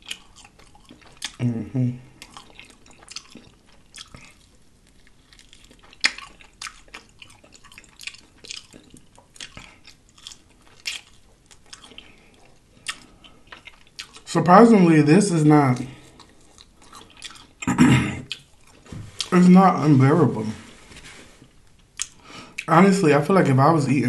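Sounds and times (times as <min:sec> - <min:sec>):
crunching crispy batter: 0:02.2 - 0:17.6
wet mouth clicks: 0:22.0 - 0:22.2.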